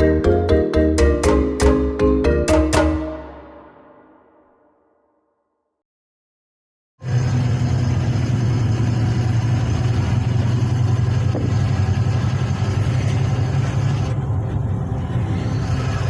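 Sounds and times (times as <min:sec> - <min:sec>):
lorry diesel engine drone: 0:07.0 - 0:16.0.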